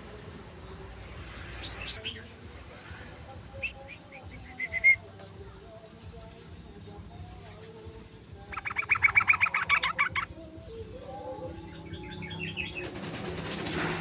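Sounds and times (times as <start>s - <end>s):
bird chattering calls: 8.4s - 10.4s, 11.1s - 13.0s.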